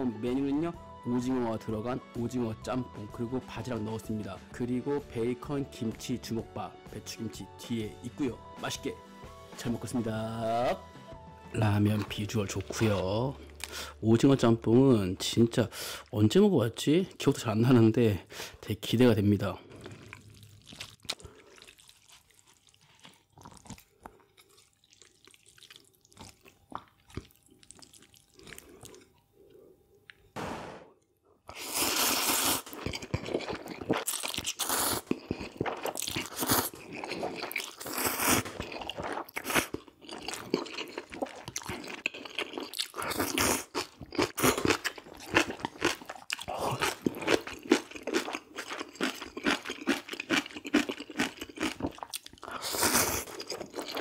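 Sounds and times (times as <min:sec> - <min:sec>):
loud chewing and mouth sounds: 0:11.6 - 0:13.8, 0:19.6 - 0:30.2, 0:31.5 - 0:54.0.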